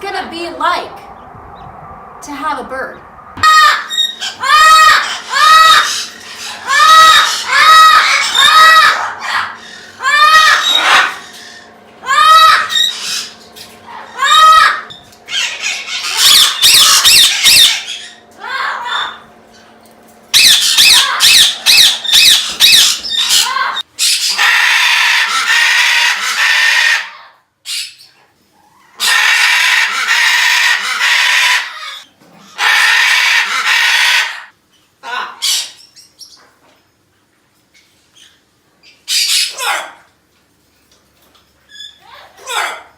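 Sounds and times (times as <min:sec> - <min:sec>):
rising whistled calls: 0:00.6 - 0:13.4, 0:14.1 - 0:18.2, 0:20.4 - 0:23.5
parrots squawking: 0:03.4 - 0:19.3, 0:20.3 - 0:36.5, 0:37.8 - 0:40.1, 0:41.7 - 0:42.9.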